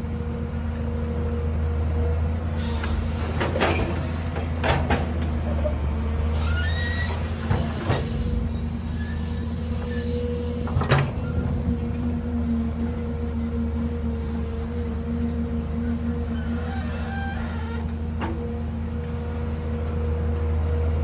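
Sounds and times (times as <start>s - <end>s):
excavator engine hum: 0.0s - 21.0s
faint squeaks: 5.4s - 10.6s, 15.8s - 17.9s.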